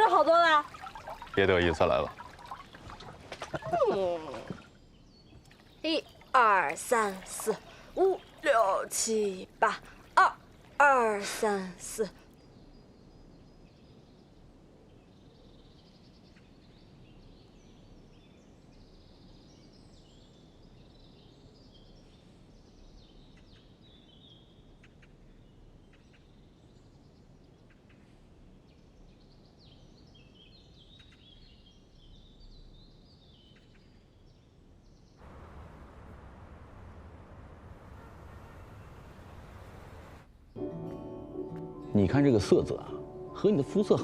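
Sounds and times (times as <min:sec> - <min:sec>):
birds chirping: 0:00.0 - 0:12.1, 0:37.6 - 0:44.0
low steady hiss: 0:00.0 - 0:44.0.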